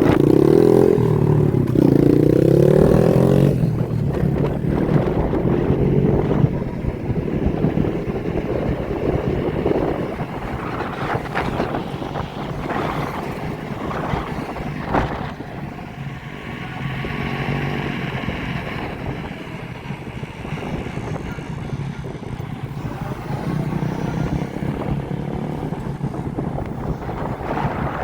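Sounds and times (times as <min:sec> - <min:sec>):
motorbike engines running: 0:00.0 - 0:28.0
wind noise on microphone: 0:00.0 - 0:28.0.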